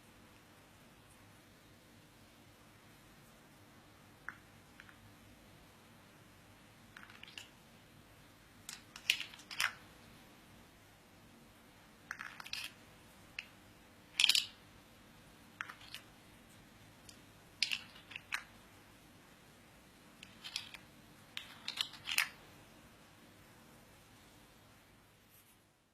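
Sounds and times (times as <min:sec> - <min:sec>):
clicks and scratchy crunches: 0:20.2 - 0:22.4.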